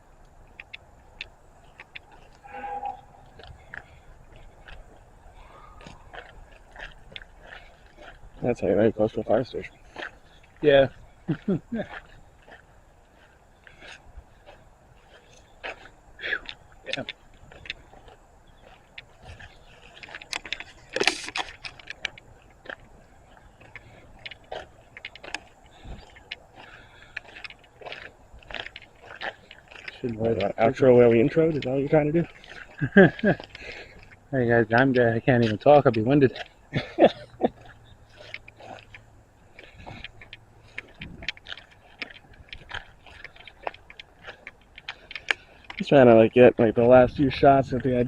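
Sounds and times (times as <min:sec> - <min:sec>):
footsteps crunching through dry brush: 0:00.0 - 0:48.0.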